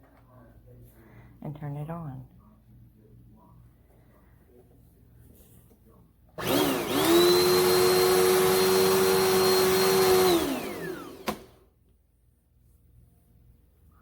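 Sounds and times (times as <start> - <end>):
vacuum cleaner motor whine: 6.4 - 11.7.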